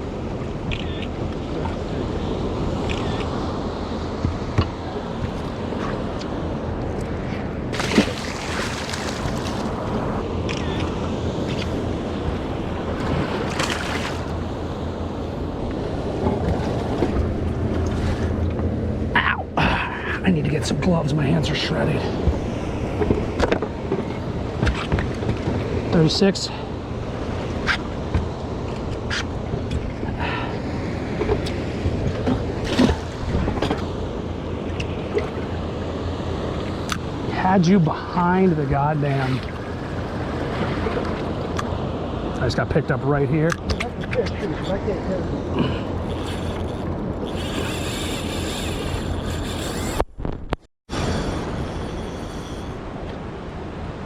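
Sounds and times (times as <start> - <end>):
boat engine rumble: 0.0 - 54.0
waves: 0.0 - 54.0
water washing: 7.7 - 10.2, 12.8 - 14.4.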